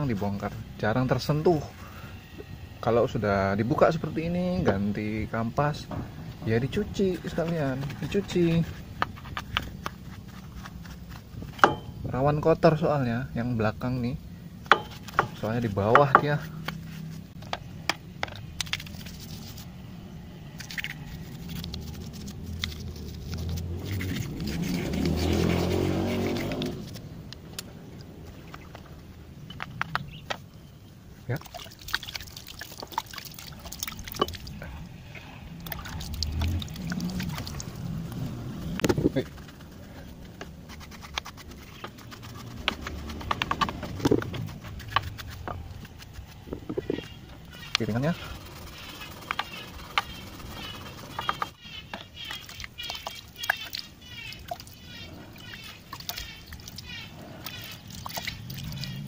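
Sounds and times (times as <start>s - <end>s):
low steady hum: 0.0s - 59.0s
tool clicks taps and scrapes: 8.9s - 11.9s, 14.7s - 19.6s, 40.3s - 47.8s.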